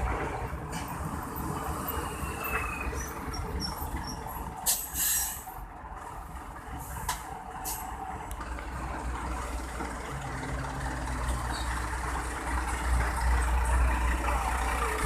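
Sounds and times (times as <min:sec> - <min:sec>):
heavy truck traffic rumbling: 0:00.0 - 0:15.0
air brakes hissing: 0:04.6 - 0:05.6, 0:06.8 - 0:07.9.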